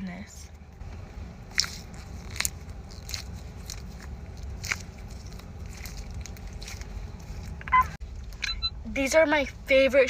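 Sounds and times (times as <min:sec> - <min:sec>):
squishy toys crackling: 0:01.5 - 0:07.6.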